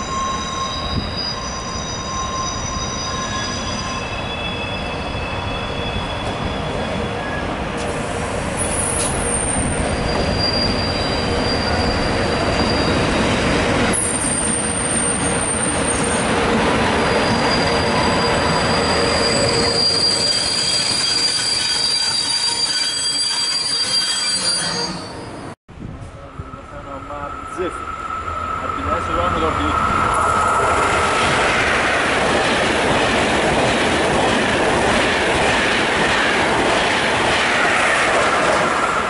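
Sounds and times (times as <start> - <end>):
high-pitched wheel squeal: 0.0 - 7.5, 8.6 - 13.2, 17.0 - 25.5, 26.4 - 31.5.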